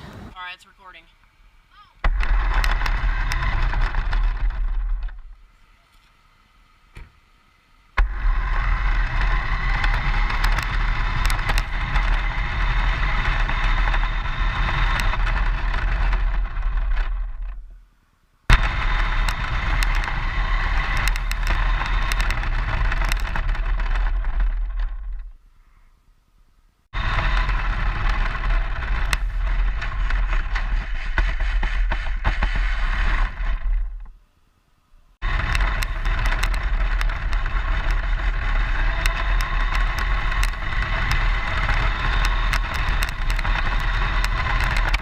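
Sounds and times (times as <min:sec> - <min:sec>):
clicks and knocks from bumps: 0:02.0 - 0:05.3, 0:08.8 - 0:17.6, 0:18.5 - 0:25.3, 0:27.0 - 0:34.1, 0:35.2 - 0:45.0
toy car motor and rolling: 0:02.1 - 0:06.2, 0:08.0 - 0:17.7, 0:18.5 - 0:25.4, 0:26.9 - 0:34.1, 0:35.2 - 0:45.0.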